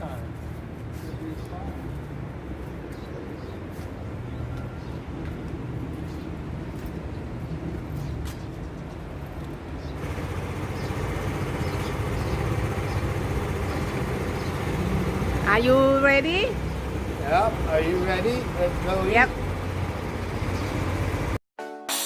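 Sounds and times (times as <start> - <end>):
vehicle engine rumble: 5.5 - 21.4.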